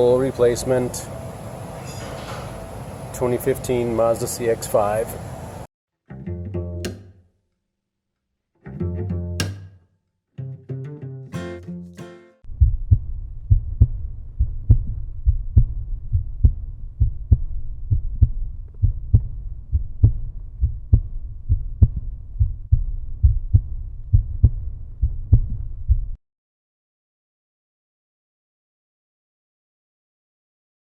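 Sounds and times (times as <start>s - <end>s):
heartbeat-like thudding beat: 12.4s - 26.2s.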